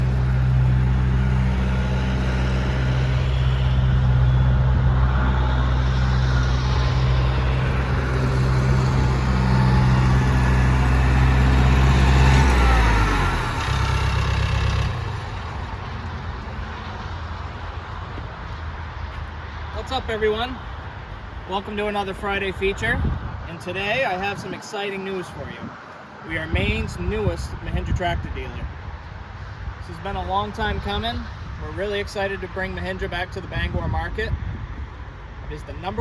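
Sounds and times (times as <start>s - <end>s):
engine running: 0.0s - 19.4s.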